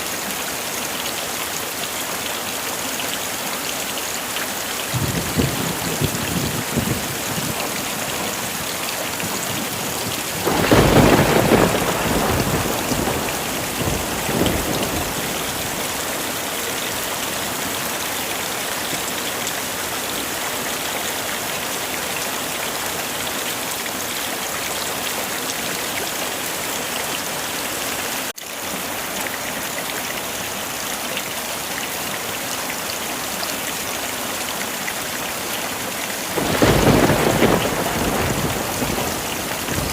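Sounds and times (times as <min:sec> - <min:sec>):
heavy rain falling: 0:00.0 - 0:39.9
thunder rumbling: 0:04.9 - 0:16.1, 0:36.4 - 0:39.9.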